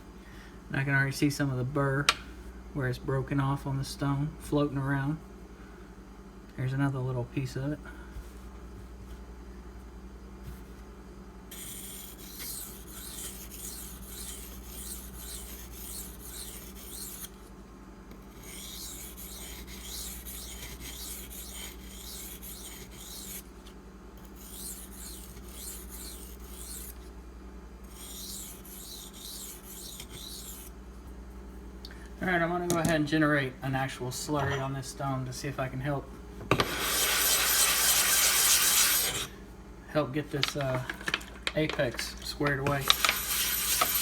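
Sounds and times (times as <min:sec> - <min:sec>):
knife scraping on a sharpening stone: 0:11.5 - 0:17.3.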